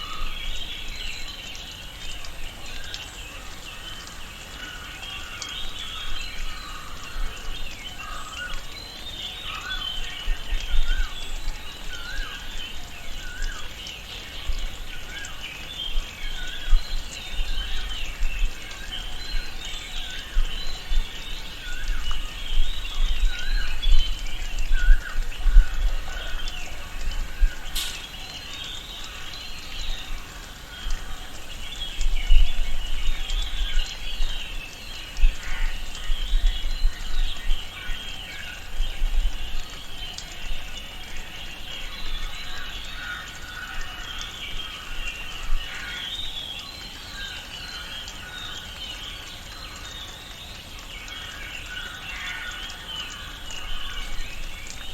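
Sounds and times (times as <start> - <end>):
birds chirping and calling: 0.0 - 50.3
steady hiss: 0.0 - 54.9
sharp click: 27.8 - 28.1.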